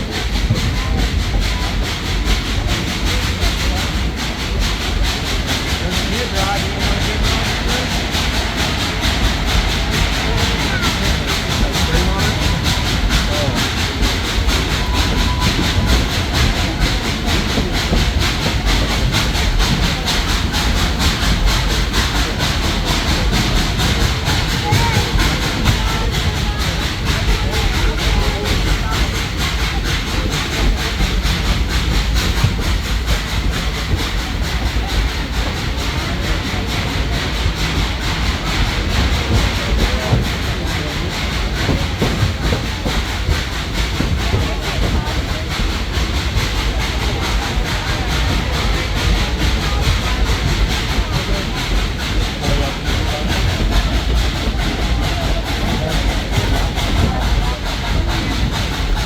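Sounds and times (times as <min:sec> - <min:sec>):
train car rumbling on rails: 0:00.0 - 0:59.0.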